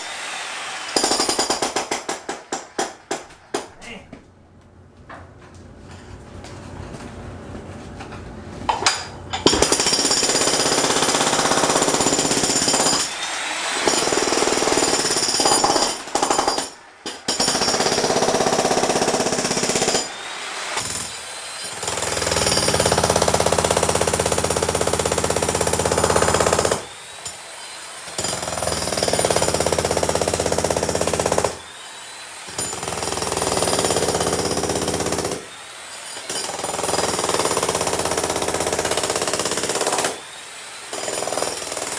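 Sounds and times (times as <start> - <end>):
jackhammer pounding concrete: 1.0 - 3.2, 9.5 - 13.1, 13.8 - 20.1, 20.8 - 27.4, 28.1 - 31.6, 32.5 - 35.5, 36.2 - 40.2, 40.9 - 41.9.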